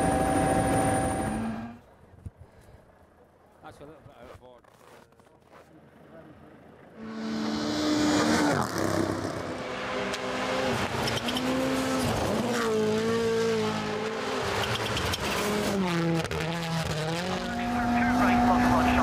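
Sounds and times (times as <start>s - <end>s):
tyres on snow and ice: 3.8s - 6.3s
rally car engine revving: 7.0s - 19.0s.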